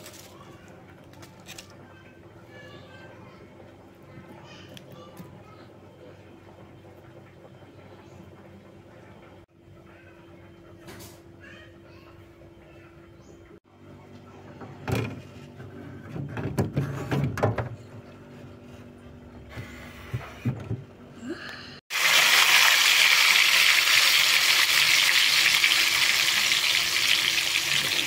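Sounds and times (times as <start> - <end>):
food sizzling in hot oil: 21.9 - 28.0.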